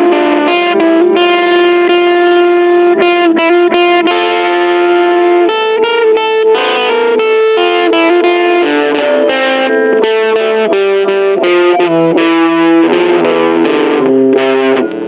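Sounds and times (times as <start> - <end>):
distorted electric guitar notes: 0.0 - 15.0.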